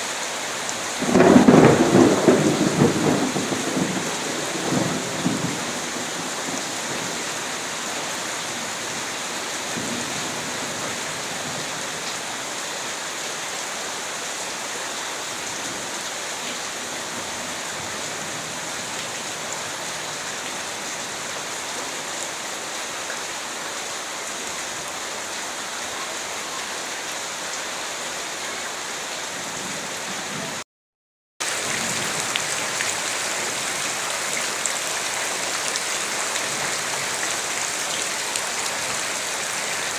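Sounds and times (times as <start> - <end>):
heavy rain falling: 0.0 - 30.6, 31.4 - 39.9
low thunder rumble: 1.0 - 7.0.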